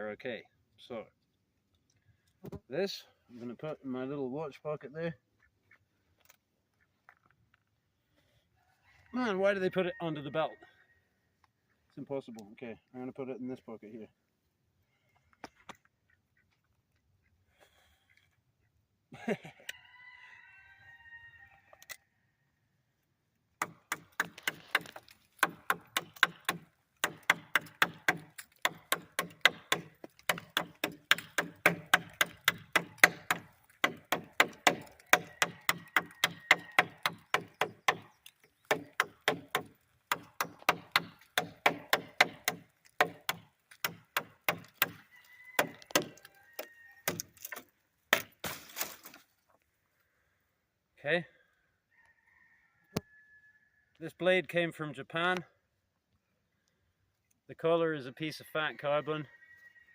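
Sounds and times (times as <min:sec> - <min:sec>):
blade chopping wood: 0:23.6 - 0:45.0, 0:45.6 - 0:49.2.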